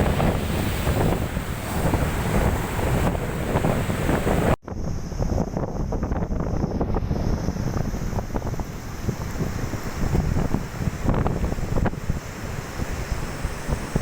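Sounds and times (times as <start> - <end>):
river waves surging: 0.0 - 4.6
wind buffeting microphone: 0.0 - 14.0.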